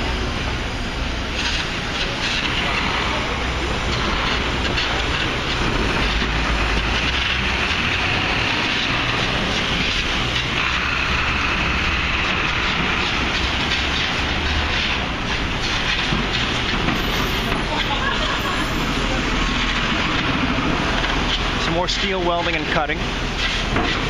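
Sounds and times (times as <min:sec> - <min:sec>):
construction site rumble and hiss: 0:00.0 - 0:24.0.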